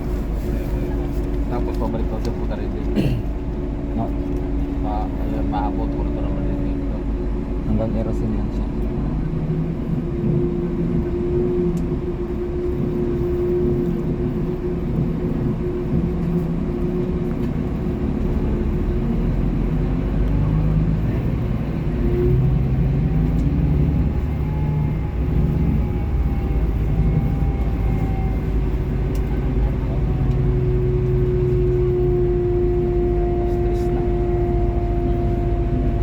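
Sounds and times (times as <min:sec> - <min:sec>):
road rumble: 0:00.0 - 0:36.0
vehicle engine drone: 0:00.0 - 0:36.0.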